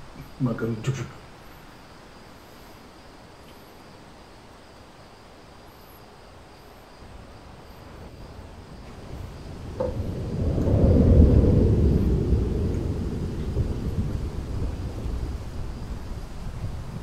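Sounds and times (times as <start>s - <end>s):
snowstorm wind roaring: 6.9s - 17.0s.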